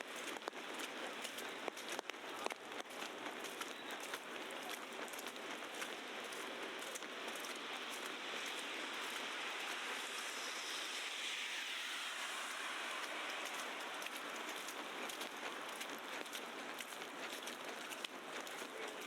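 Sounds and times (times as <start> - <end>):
tyres passing on slush: 0.0 - 19.0
wet snow hiss: 6.2 - 16.4.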